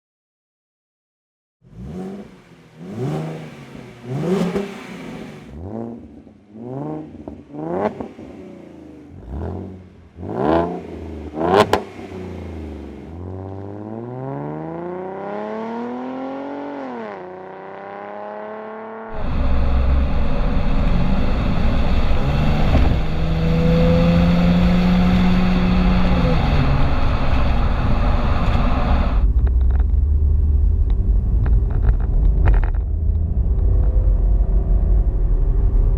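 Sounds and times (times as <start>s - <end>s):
car engine revving: 1.6s - 35.9s.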